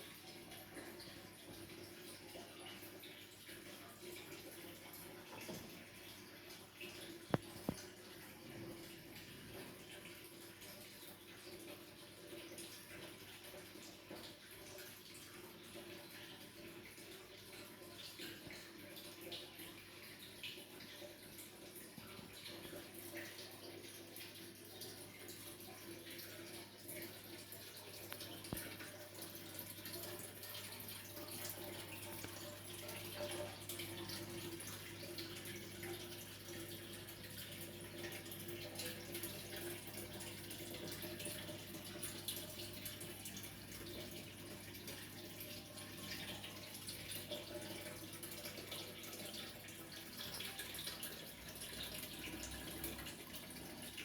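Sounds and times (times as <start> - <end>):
water trickling and dripping: 0.0 - 54.0.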